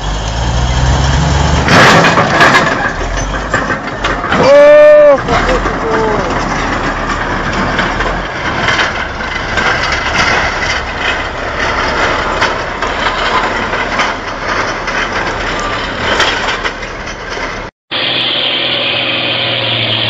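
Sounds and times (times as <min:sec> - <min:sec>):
engine hum: 0:00.0 - 0:20.0
heavy truck running: 0:00.0 - 0:20.0
sharp knocks and clatter: 0:01.2 - 0:04.6, 0:05.2 - 0:17.7.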